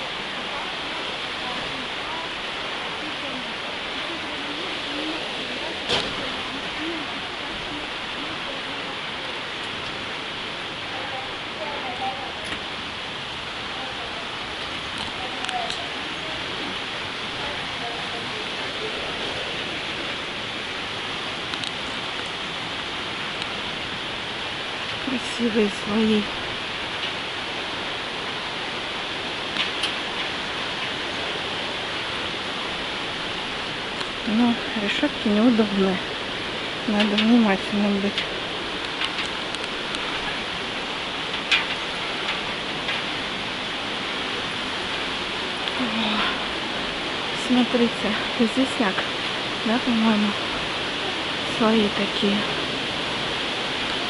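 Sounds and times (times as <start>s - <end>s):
water rushing: 0.0s - 54.0s
faint clicks: 21.5s - 22.4s, 38.1s - 40.2s.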